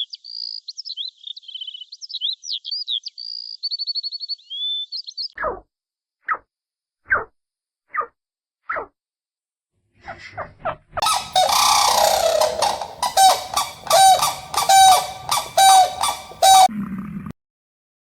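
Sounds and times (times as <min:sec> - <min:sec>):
animal honking calls: 0:11.0 - 0:16.7.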